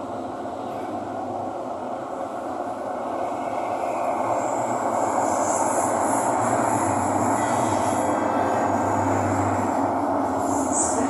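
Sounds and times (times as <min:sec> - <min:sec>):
train wheels rumbling: 0:00.0 - 0:11.0
high wheel squeal: 0:06.2 - 0:09.6.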